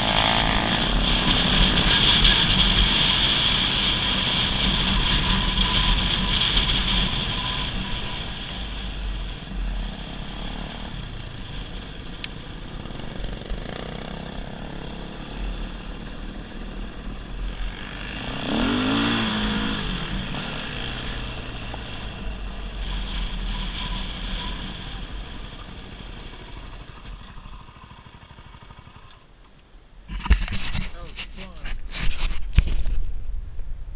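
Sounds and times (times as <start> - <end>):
dirt bike engine revving: 0.0 - 8.4, 12.6 - 25.1.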